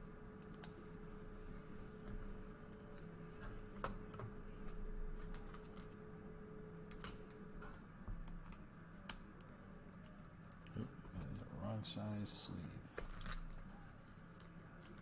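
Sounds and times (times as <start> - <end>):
low steady hum: 0.0 - 15.0
soft plastic rustling: 12.9 - 15.0.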